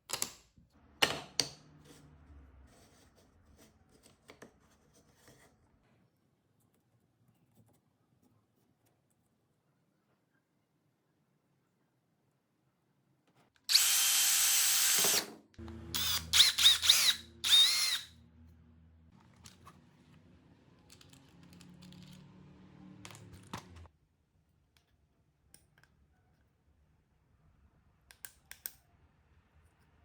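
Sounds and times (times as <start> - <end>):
electric drill whining: 13.7 - 18.2.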